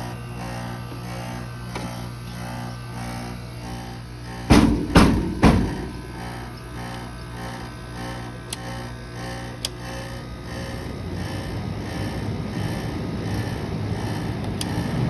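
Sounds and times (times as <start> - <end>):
air conditioner compressor hum: 0.0 - 15.0
heavy thumps: 4.5 - 6.6.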